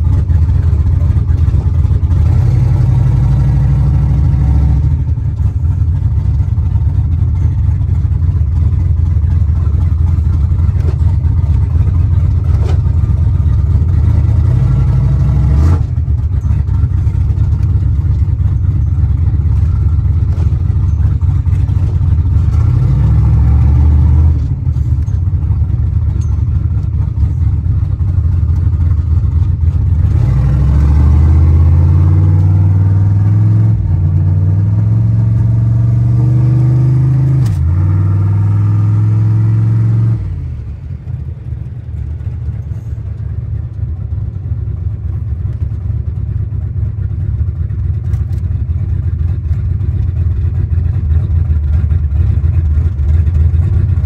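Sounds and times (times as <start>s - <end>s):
car engine accelerating through gears: 2.0s - 5.5s, 13.8s - 16.2s, 20.3s - 25.2s, 29.9s - 40.8s.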